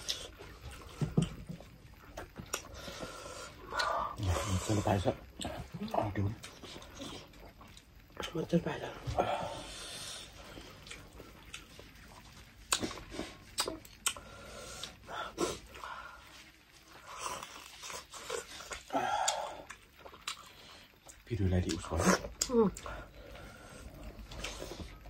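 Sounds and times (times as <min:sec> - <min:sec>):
chewing: 0:00.0 - 0:08.4, 0:09.0 - 0:25.0
lip smacks: 0:12.7 - 0:14.2
wet mouth clicks: 0:12.7 - 0:14.2.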